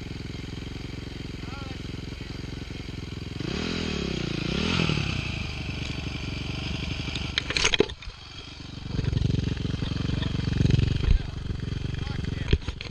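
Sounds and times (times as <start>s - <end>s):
dirt bike engine revving: 0.0s - 12.9s
clattering and scraping: 7.4s - 8.2s.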